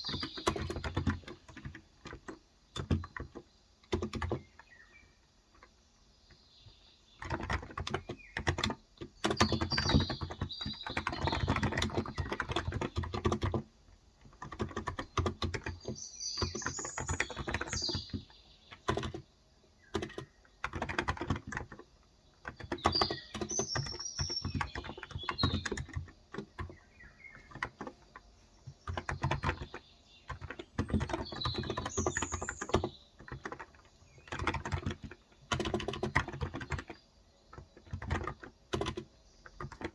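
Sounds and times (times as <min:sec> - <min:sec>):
keyboard typing: 0:00.0 - 0:04.6, 0:07.2 - 0:39.9
birds chirping: 0:00.0 - 0:39.9.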